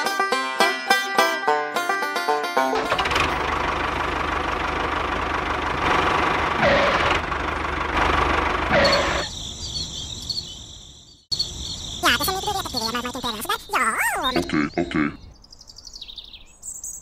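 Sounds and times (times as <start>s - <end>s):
engine-like rumbling: 2.5s - 15.4s.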